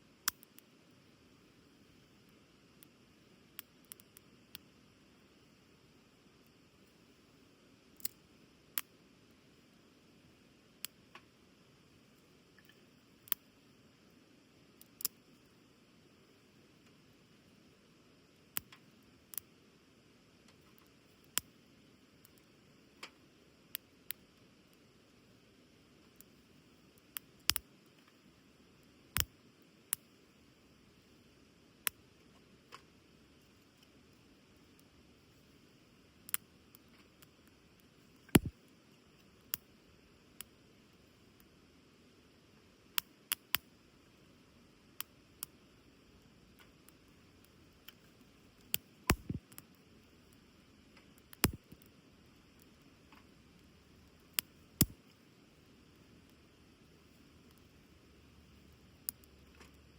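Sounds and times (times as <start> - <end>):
campfire crackling: 20.4 - 59.9
fire popping: 36.3 - 38.6, 46.7 - 49.8, 51.0 - 51.9.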